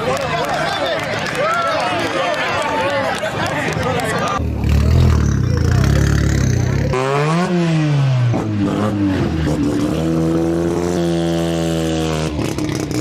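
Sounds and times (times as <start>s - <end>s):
car engine revving: 4.4s - 13.0s.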